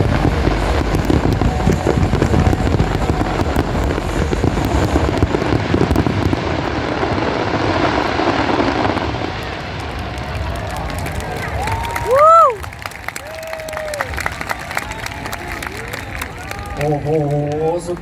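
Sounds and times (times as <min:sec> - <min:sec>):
deep rumble: 0:00.0 - 0:12.8
fireworks bangs and crackles: 0:00.0 - 0:18.0.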